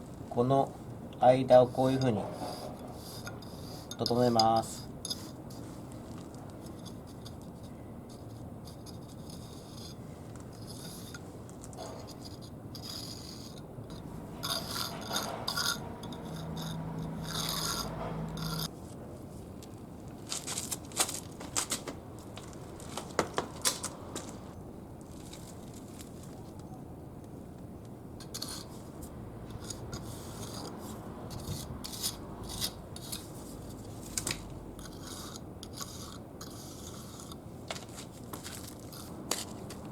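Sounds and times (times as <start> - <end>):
tool scraping wet mortar: 1.5 - 5.7, 10.6 - 11.2, 11.8 - 18.7, 28.2 - 28.8, 29.5 - 33.9, 34.8 - 39.8.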